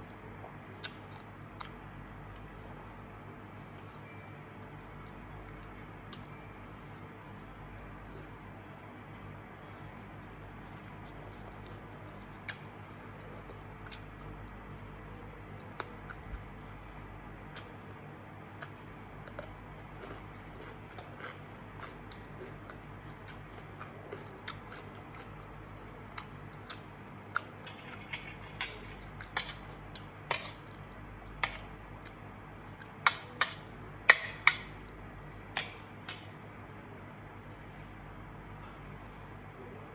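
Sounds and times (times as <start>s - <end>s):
person chewing: 0.0s - 1.8s, 4.8s - 7.9s, 9.6s - 14.9s, 15.6s - 17.9s, 18.5s - 34.9s.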